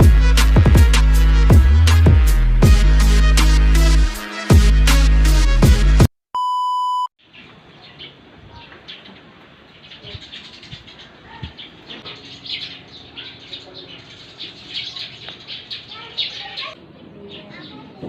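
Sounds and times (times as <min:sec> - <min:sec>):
birds chirping: 0:07.2 - 0:18.0.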